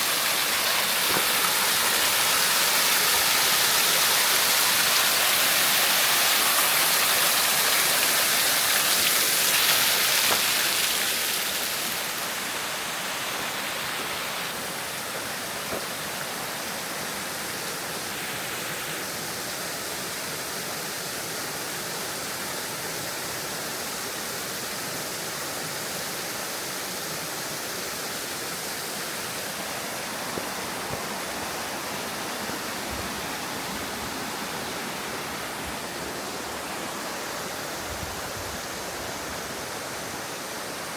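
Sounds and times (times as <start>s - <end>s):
flowing falling water: 0.0s - 40.9s.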